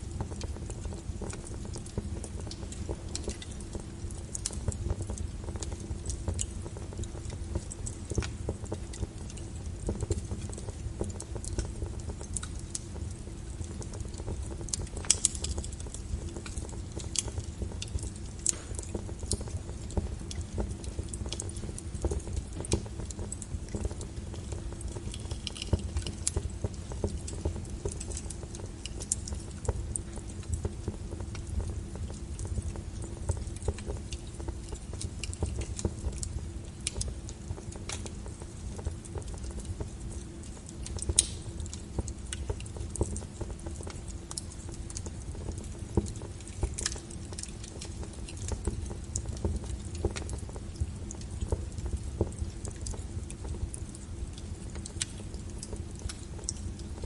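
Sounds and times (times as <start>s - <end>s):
log fire crackling: 0.0s - 57.0s.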